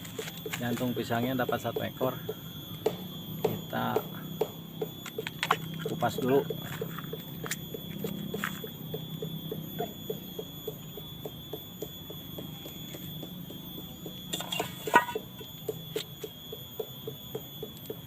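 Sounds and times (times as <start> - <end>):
steady ticking pulse: 0.0 - 18.0.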